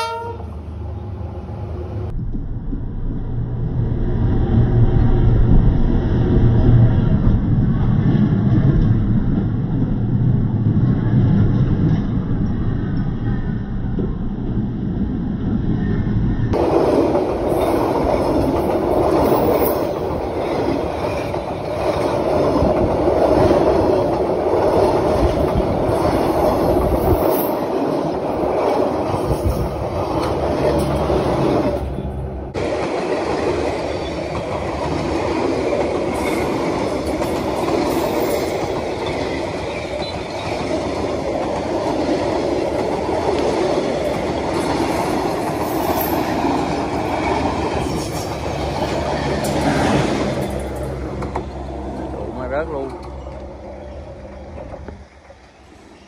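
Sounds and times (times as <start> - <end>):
train wheels running over rails: 16.4 - 55.5.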